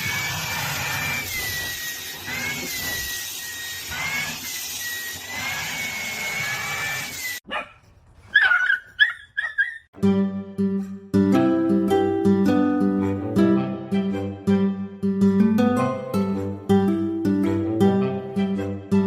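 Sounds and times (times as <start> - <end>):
dog yelping: 7.4 - 9.9
dog whining: 8.3 - 9.9.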